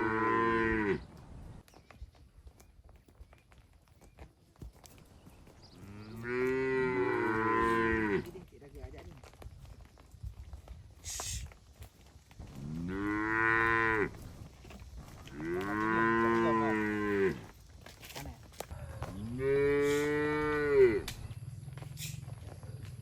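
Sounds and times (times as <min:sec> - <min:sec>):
cattle mooing: 0:00.0 - 0:01.0, 0:05.8 - 0:08.3, 0:12.6 - 0:14.2, 0:15.3 - 0:17.5, 0:19.2 - 0:21.2.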